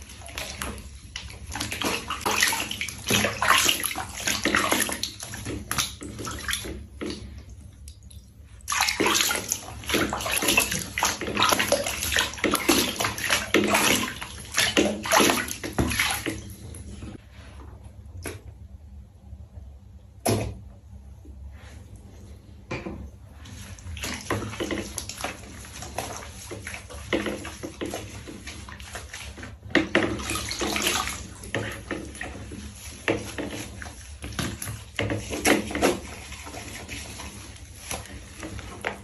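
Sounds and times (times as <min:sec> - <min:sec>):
water sloshing in a tub: 0:00.0 - 0:39.0.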